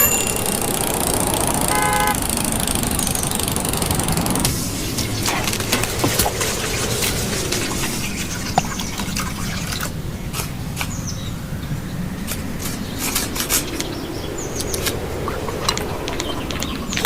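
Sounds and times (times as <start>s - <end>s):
brief high chirps: 0.0s - 0.7s.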